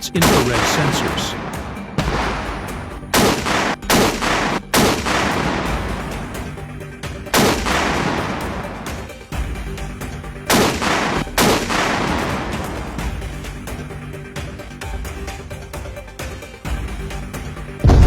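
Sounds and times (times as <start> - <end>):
background music: 0.0 - 18.0
missile launch blasts: 0.2 - 6.4.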